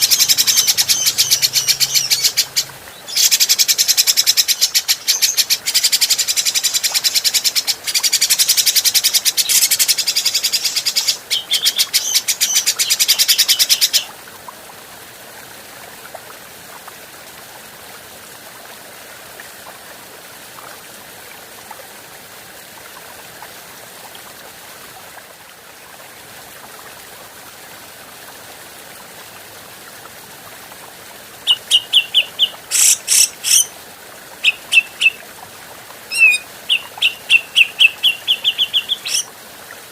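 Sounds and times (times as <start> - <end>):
sharp bird calls: 0.0 - 7.2, 31.5 - 33.7, 36.1 - 39.3.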